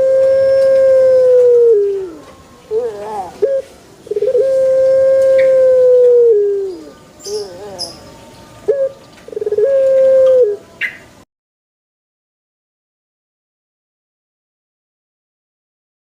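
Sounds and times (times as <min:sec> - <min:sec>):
dove cooing: 0:00.0 - 0:08.0, 0:08.6 - 0:11.0.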